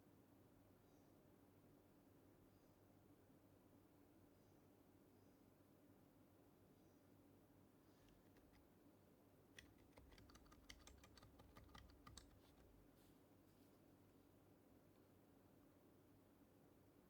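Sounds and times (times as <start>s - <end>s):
quiet keyboard typing: 8.1s - 8.7s, 9.6s - 13.0s.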